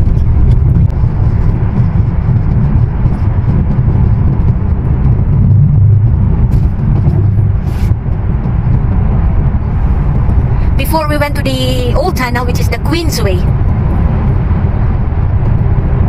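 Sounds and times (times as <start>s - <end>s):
road and engine rumble in car: 0.0s - 16.0s.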